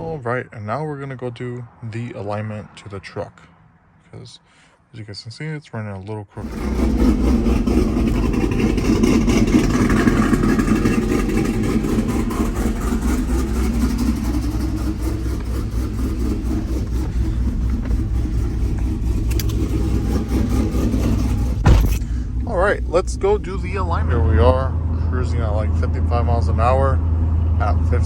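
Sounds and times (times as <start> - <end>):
truck engine driving: 0.0 - 0.5, 6.4 - 28.0
road noise: 0.0 - 5.2, 6.4 - 28.0.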